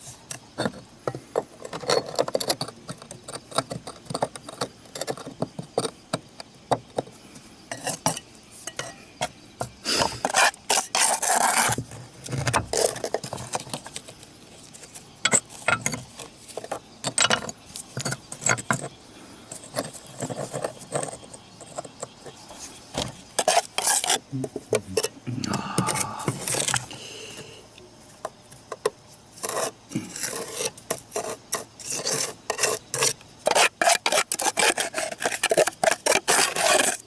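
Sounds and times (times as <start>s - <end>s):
tiles scraping: 9.9s - 14.0s, 29.4s - 37.0s
roof tiles clinking and knocking: 15.2s - 18.9s.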